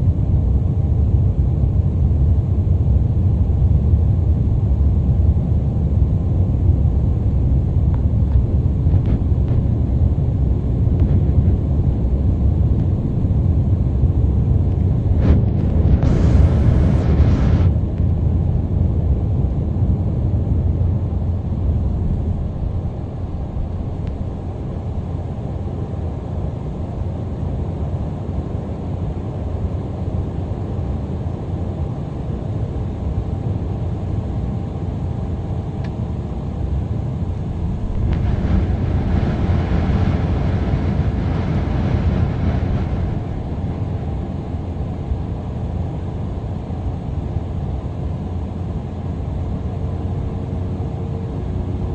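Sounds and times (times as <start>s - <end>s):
jet airliner taking off: 0.1s - 51.9s.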